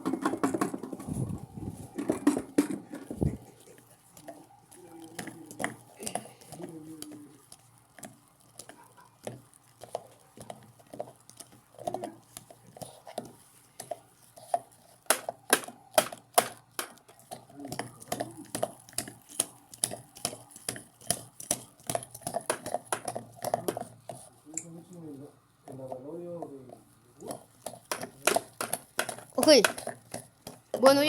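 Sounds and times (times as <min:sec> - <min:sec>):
washing machine hum: 0:00.0 - 0:03.8.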